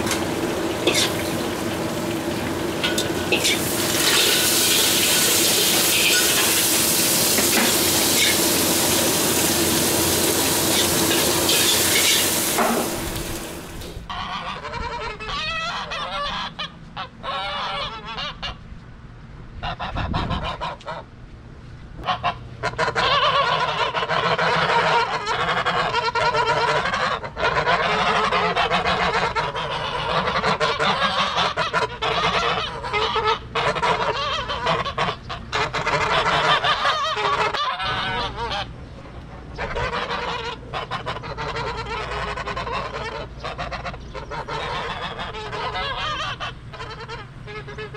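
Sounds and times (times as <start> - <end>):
geese honking: 0.0 - 18.6, 22.0 - 47.9
stir-frying sizzle in a wok: 0.1 - 13.7.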